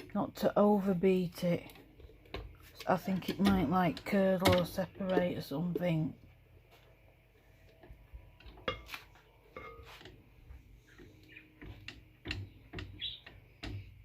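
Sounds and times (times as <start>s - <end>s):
utensils clinking against bowl: 8.5s - 10.1s.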